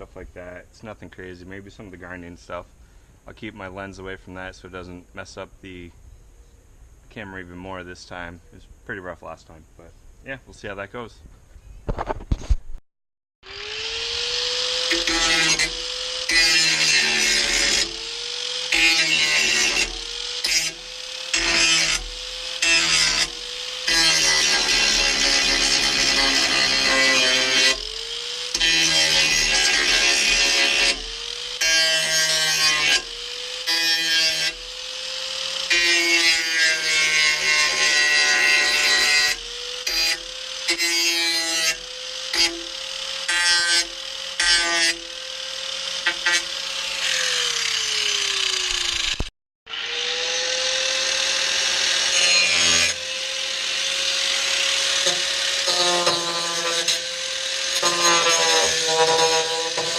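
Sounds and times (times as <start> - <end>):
grinder grinding sheet steel: 13.4 - 59.9.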